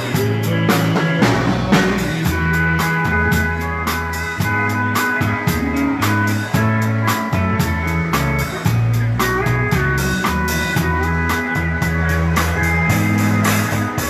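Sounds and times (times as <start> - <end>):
bass notes: 0.0 - 14.0
dance band playing live: 0.0 - 14.0
drums steady beat: 0.0 - 14.0
guitar: 0.0 - 14.0.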